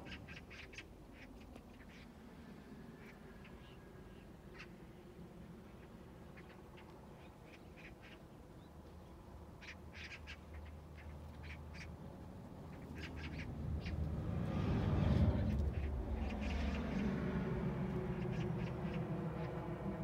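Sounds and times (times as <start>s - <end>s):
birds calling: 0.0s - 2.2s, 5.7s - 14.6s, 15.2s - 20.0s.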